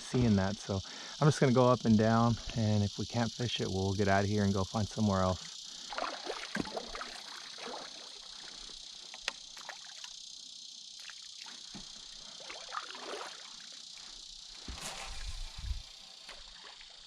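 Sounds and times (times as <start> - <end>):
high insect buzz: 0.0 - 17.0
paddling water and hull noises: 5.9 - 8.1.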